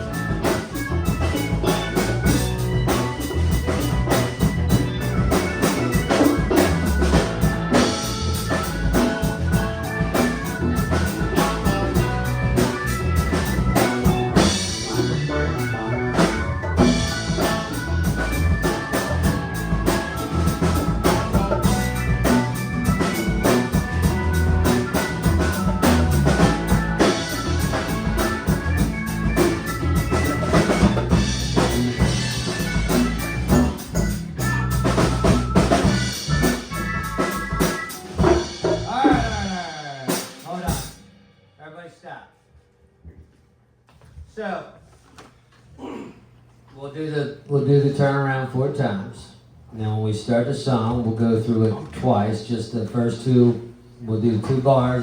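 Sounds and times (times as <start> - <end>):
band playing live: 0.0 - 41.4
drum kit beat: 0.0 - 41.5.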